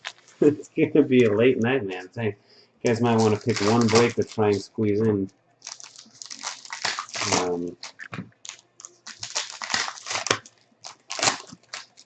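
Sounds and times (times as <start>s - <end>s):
plastic wrapping crinkling and tearing: 0.0s - 0.5s, 2.9s - 4.6s, 5.6s - 12.0s.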